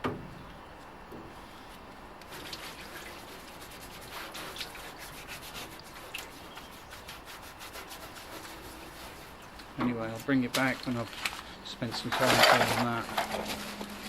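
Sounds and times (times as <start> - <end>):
brush scrubbing: 2.2 - 14.0.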